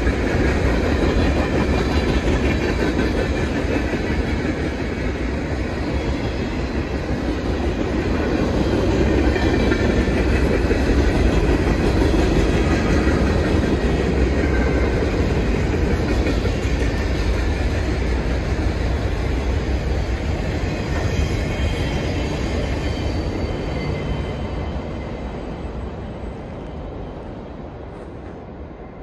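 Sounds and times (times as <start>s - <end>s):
freight cars rolling on rails: 0.0s - 29.0s
faint high wheel squeal: 20.8s - 27.2s.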